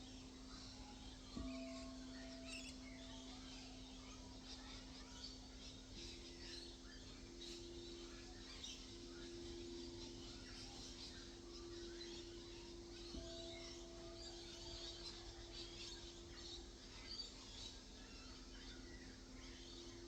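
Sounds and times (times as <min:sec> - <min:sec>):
birds chirping faintly: 0:00.0 - 0:20.0
singing bowls ringing: 0:00.0 - 0:20.0.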